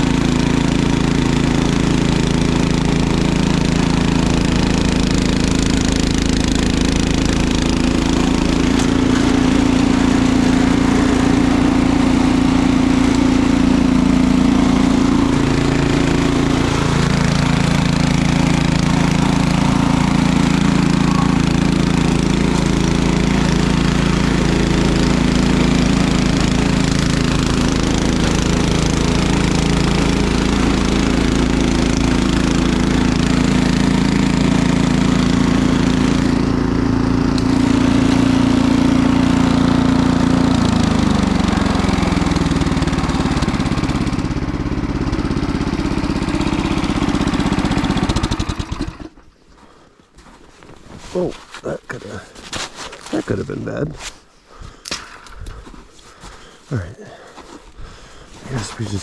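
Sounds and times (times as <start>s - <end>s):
engine running steadily: 0.0s - 49.8s.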